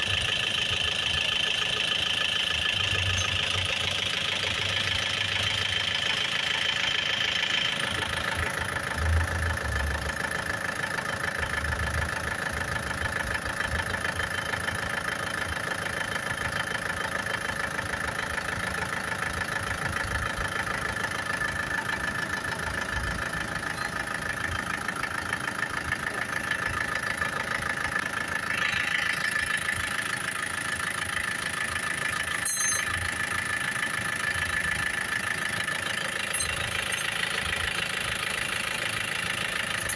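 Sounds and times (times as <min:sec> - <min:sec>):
car engine idling: 0:00.0 - 0:39.9
high-pitched whine: 0:28.5 - 0:29.9, 0:32.2 - 0:33.2, 0:36.2 - 0:37.1.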